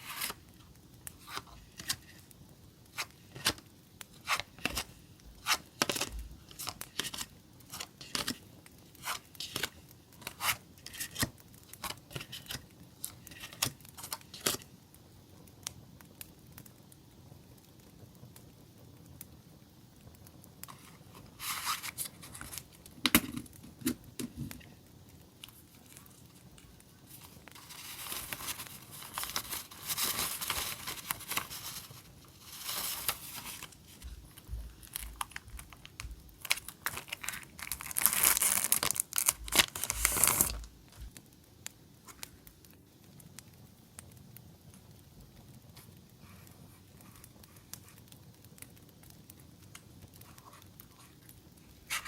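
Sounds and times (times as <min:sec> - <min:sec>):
packaging tearing and crinkling: 0:00.0 - 0:00.4, 0:20.7 - 0:24.5, 0:25.4 - 0:41.1.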